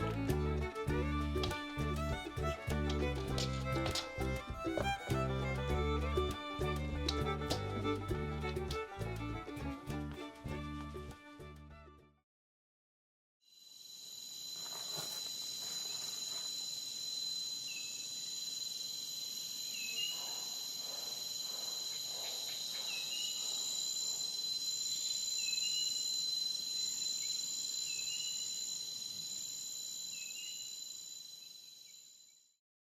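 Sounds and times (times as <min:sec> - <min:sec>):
insects chorus: 0:13.6 - 0:32.4.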